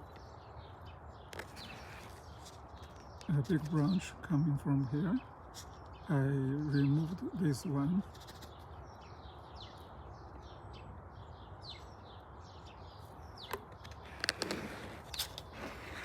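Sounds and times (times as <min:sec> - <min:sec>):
small birds chirping: 0:00.0 - 0:16.0
sharp clicks or rustles: 0:13.4 - 0:16.0.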